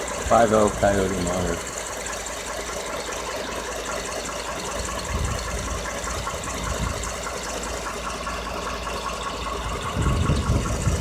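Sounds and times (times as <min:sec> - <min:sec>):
engine ticking over low rumble: 0:00.0 - 0:11.0.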